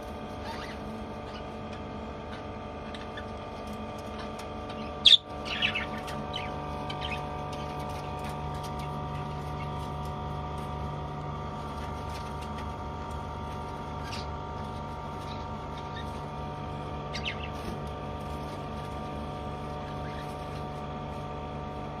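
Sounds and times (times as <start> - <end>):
steady hum: 0.0 - 22.0
budgerigars chirping: 0.4 - 1.6, 2.3 - 8.3, 13.9 - 14.3, 15.1 - 16.3, 17.0 - 17.8, 19.8 - 20.7.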